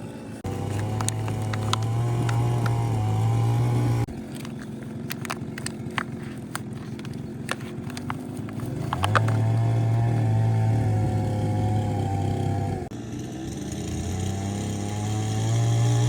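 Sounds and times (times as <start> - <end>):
motor running: 0.0 - 16.0
sharp clicks and knocks: 0.5 - 10.7.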